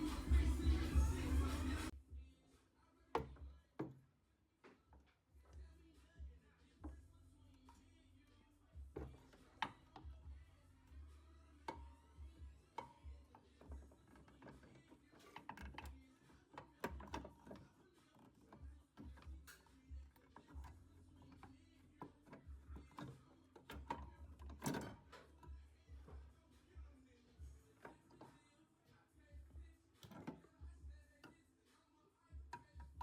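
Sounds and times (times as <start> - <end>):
faint clicks and knocks: 29.4 - 31.4.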